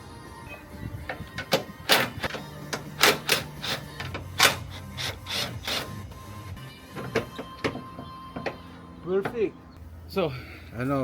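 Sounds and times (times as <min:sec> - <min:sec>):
sharp clicks and knocks: 0:01.1 - 0:04.6, 0:06.9 - 0:08.6.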